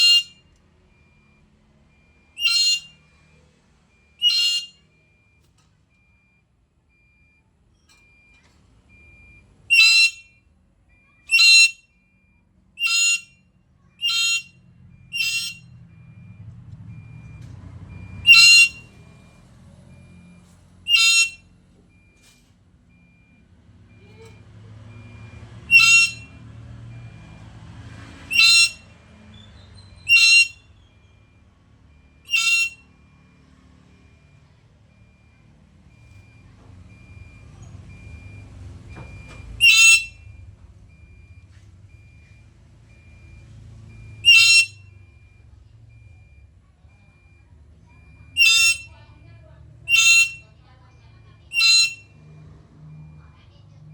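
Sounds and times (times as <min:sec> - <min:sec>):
parrot calling: 0:00.0 - 0:00.3, 0:02.4 - 0:02.9, 0:04.2 - 0:04.7, 0:09.7 - 0:10.2, 0:11.3 - 0:11.8, 0:12.8 - 0:13.3, 0:14.0 - 0:15.6, 0:18.3 - 0:18.8, 0:20.9 - 0:21.4, 0:25.6 - 0:26.4, 0:28.3 - 0:30.9, 0:32.3 - 0:32.8, 0:39.6 - 0:40.2, 0:44.1 - 0:44.8, 0:48.4 - 0:48.9, 0:49.9 - 0:50.5, 0:51.5 - 0:52.0.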